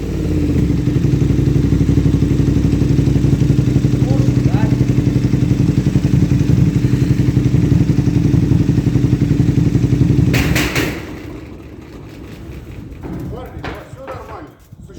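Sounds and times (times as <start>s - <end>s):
motorcycle engine idling: 0.0s - 13.8s
engine knock: 0.0s - 14.1s
sharp thumps: 8.4s - 14.5s.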